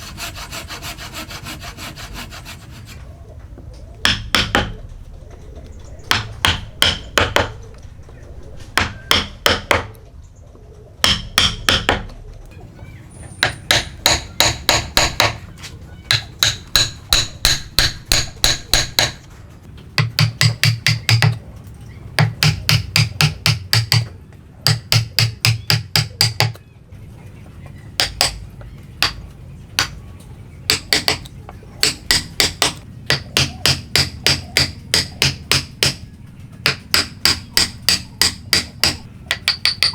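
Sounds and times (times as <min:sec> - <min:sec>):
hammer striking a chisel: 0:04.1 - 0:04.7, 0:06.1 - 0:07.5, 0:08.8 - 0:09.9, 0:11.0 - 0:12.1, 0:13.4 - 0:15.4, 0:16.1 - 0:19.2, 0:20.0 - 0:21.4, 0:22.2 - 0:26.6, 0:28.0 - 0:28.4, 0:29.0 - 0:29.2, 0:29.8 - 0:30.0, 0:30.7 - 0:36.0, 0:36.6 - 0:39.9.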